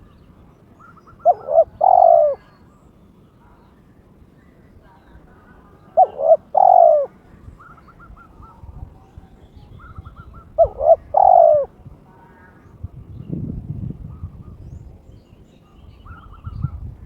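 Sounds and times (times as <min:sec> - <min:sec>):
dove cooing: 0:00.8 - 0:02.7, 0:05.2 - 0:08.8, 0:09.8 - 0:12.5.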